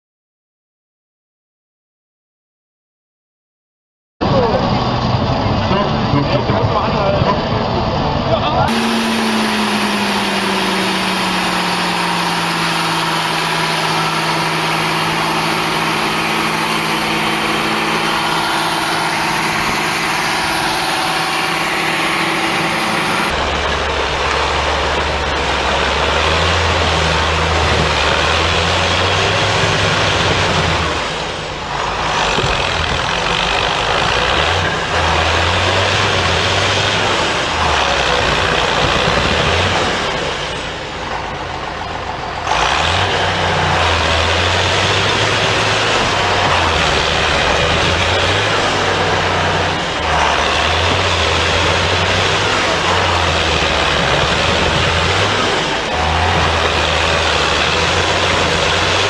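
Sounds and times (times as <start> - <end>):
deep low engine note: 4.2 - 58.9
heavy vehicle engine running: 4.2 - 59.0.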